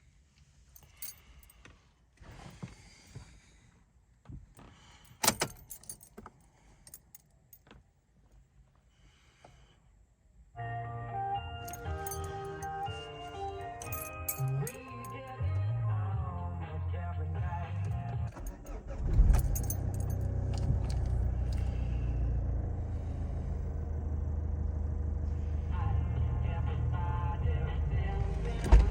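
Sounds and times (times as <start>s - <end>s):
keys jangling: 0.8s - 1.5s, 5.1s - 7.2s, 11.6s - 15.3s, 17.8s - 21.8s
metallic clinking and rattling: 0.8s - 1.5s, 5.1s - 6.3s, 11.7s - 15.2s, 18.3s - 21.7s
diesel car engine starting and idling: 10.6s - 28.9s.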